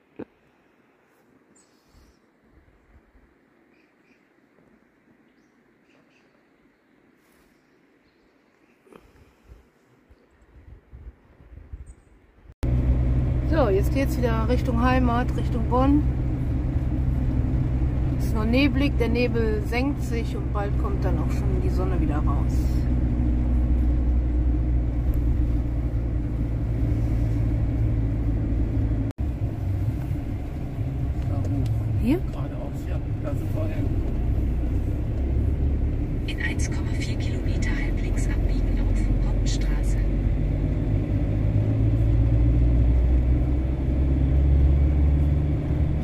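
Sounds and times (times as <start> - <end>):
road and engine rumble in van: 10.6 - 46.0.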